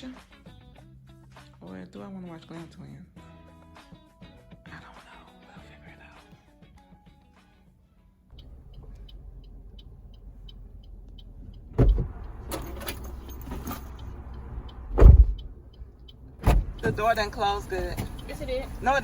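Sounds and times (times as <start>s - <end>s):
car engine running: 8.3s - 19.0s
car door slamming: 11.7s - 13.9s, 14.8s - 15.5s, 16.3s - 17.2s.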